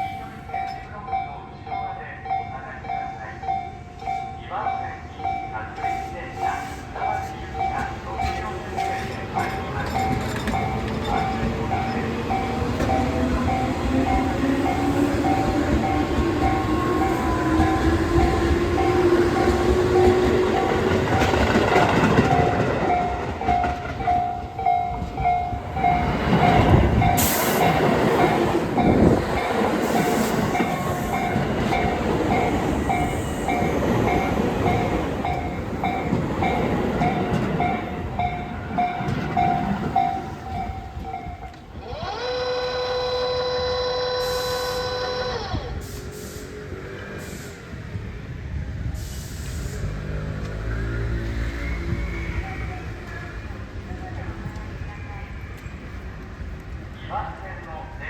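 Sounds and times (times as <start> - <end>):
electric train running: 7.5 - 45.8.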